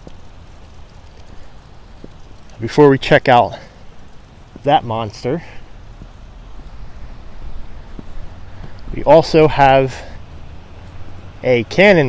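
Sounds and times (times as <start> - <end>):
faint hiss: 0.0 - 12.0
wind rumbling on microphone: 3.8 - 12.0.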